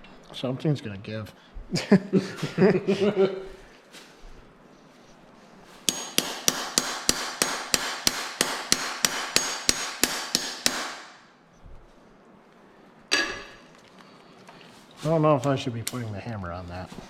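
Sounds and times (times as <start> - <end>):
hammer striking metal tool: 5.9 - 11.3, 13.1 - 13.6.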